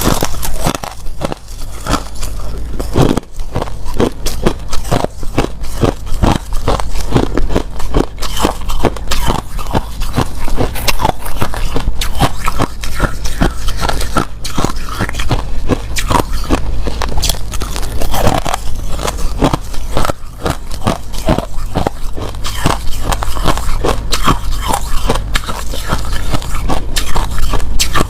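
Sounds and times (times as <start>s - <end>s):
ice being crunched in mouth: 0.0s - 28.0s.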